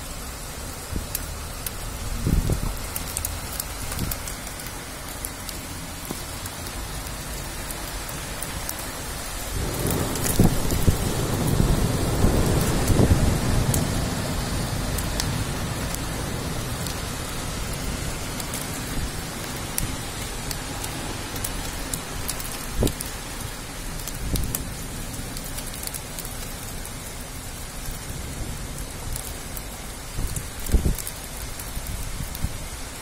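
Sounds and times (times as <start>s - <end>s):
heavy rain on the street: 0.0s - 33.0s
low thunder rumble: 7.2s - 20.0s.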